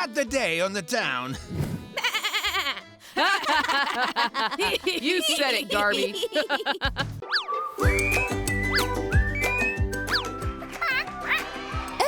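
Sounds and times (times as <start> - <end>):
cartoon music with whistle slides: 7.1 - 12.0.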